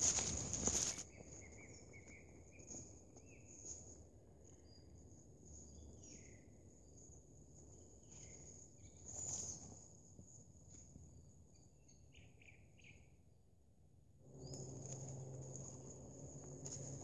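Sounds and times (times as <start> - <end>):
wild bird calls: 14.2 - 17.0.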